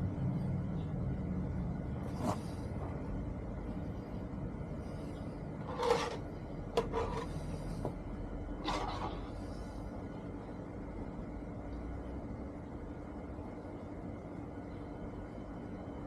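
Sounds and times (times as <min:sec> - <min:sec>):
steady low rumble: 0:00.0 - 0:06.8.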